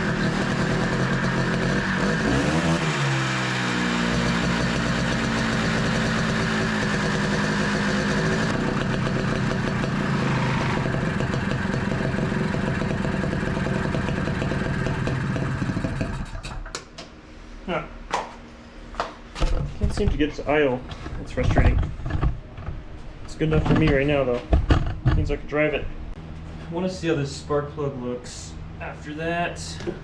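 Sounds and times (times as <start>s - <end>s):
two-stroke engine running unevenly: 0.0s - 16.5s.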